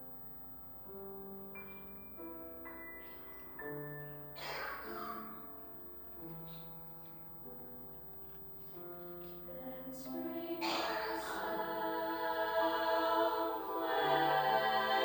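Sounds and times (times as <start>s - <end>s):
choir singing held chords: 9.4s - 15.0s.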